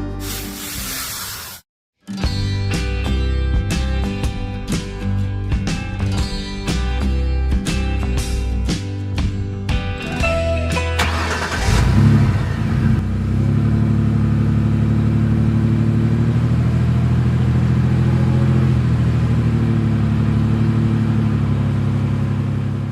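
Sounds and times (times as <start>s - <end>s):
vehicle engine revving and droning: 11.0s - 22.9s.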